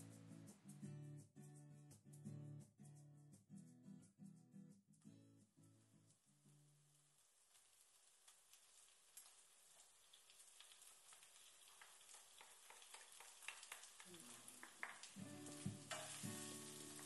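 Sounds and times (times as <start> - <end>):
music: 0.0 - 6.7, 15.1 - 17.0
food sizzling in a pan: 6.3 - 17.0
spatula stirring: 15.0 - 17.0.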